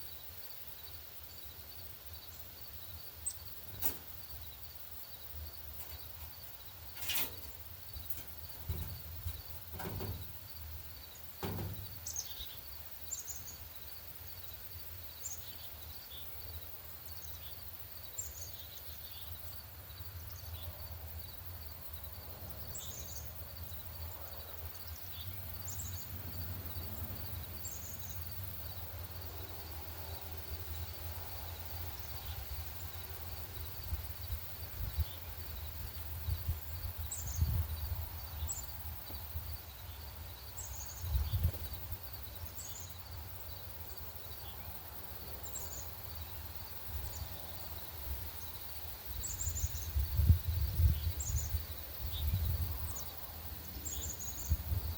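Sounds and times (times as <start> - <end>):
songbirds chipping: 0.0 - 54.9
wind rumble on microphone: 33.8 - 39.6, 40.9 - 42.0, 49.2 - 53.0, 53.9 - 54.9.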